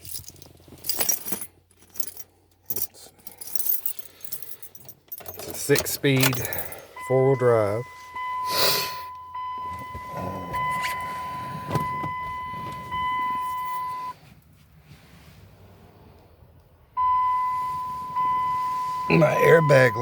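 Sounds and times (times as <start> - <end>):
electronic warning tone: 17.0 - 20.0.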